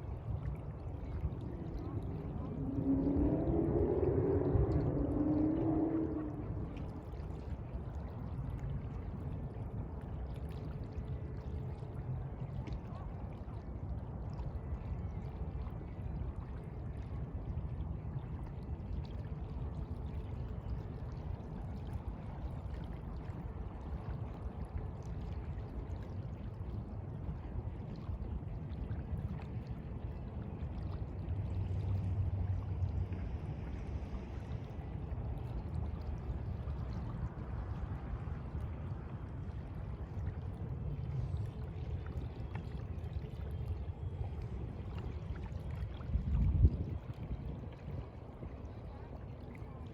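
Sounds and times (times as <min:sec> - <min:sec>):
sea water lapping: 0:27.5 - 0:49.9.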